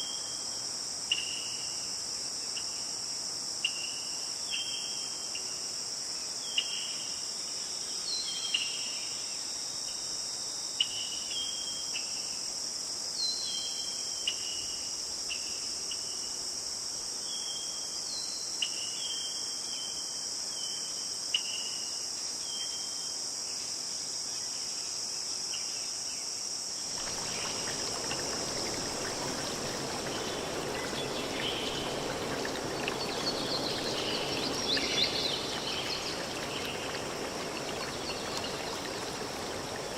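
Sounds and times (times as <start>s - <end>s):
crickets and insects chorus: 0.0s - 39.9s
broad steady rushing noise: 26.9s - 39.9s.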